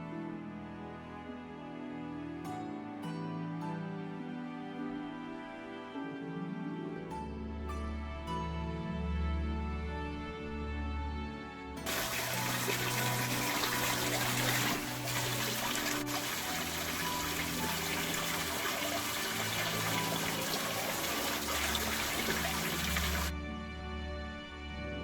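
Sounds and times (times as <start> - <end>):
background music: 0.0 - 25.0
rushing water: 11.9 - 23.3.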